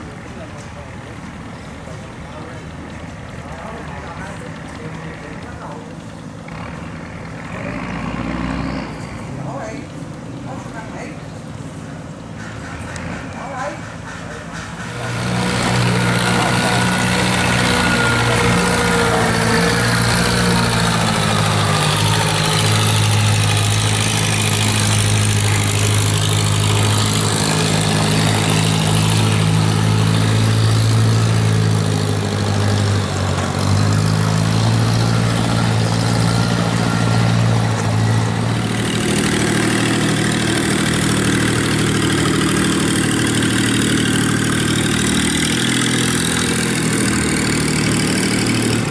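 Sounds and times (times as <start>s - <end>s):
boat engine running: 0.0s - 48.9s.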